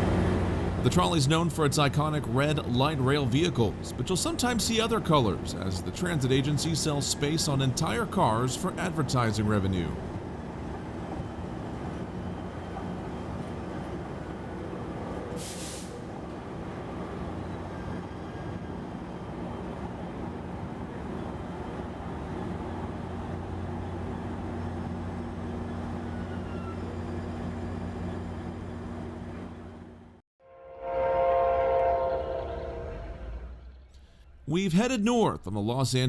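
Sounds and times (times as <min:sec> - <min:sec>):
light rail electric hum: 0:00.0 - 0:34.7
air release hiss: 0:15.4 - 0:16.1.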